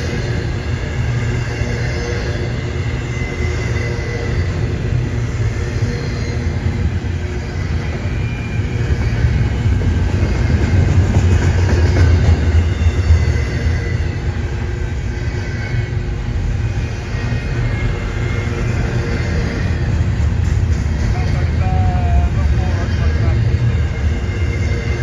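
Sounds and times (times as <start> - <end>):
train rumbling on rails: 0.0 - 25.0.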